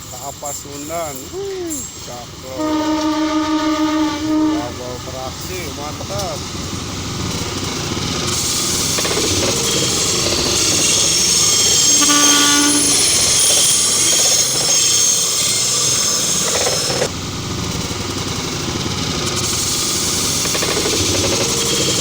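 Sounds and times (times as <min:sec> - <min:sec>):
train wheels rolling on rails: 0:00.0 - 0:22.0
train horn tone: 0:02.5 - 0:06.3, 0:09.0 - 0:14.0, 0:21.0 - 0:22.0.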